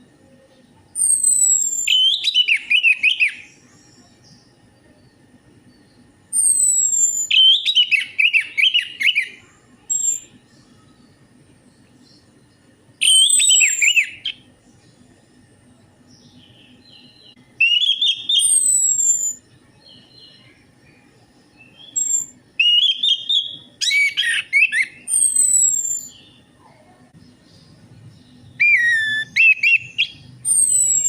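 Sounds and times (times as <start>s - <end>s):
thrush singing whistled song: 0.9s - 4.4s, 5.8s - 11.2s, 13.0s - 14.5s, 16.2s - 26.5s, 27.3s - 31.0s.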